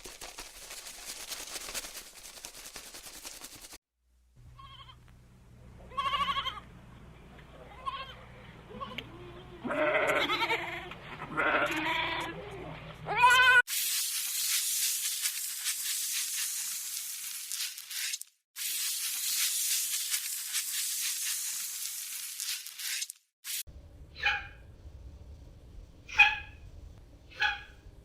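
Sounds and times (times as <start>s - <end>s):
goats or sheep bleating: 5.9s - 6.6s, 7.6s - 13.6s.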